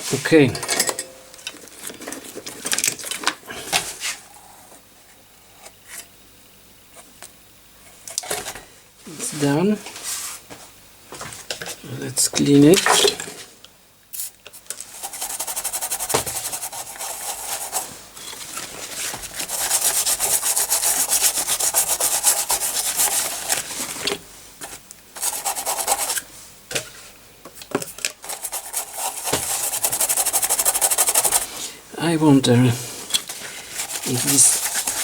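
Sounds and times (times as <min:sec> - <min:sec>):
rapid scrubbing on circuit board: 0:14.9 - 0:18.0, 0:19.3 - 0:23.9, 0:25.2 - 0:26.2, 0:28.2 - 0:31.6, 0:33.6 - 0:35.0.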